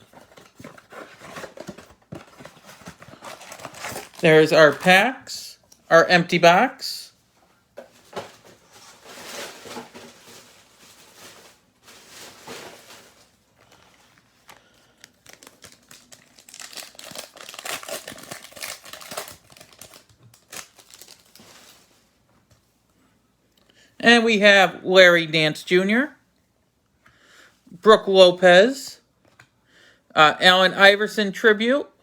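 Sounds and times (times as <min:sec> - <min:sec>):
foil card packs tearing and crinkling: 0:00.0 - 0:05.3, 0:09.0 - 0:21.8.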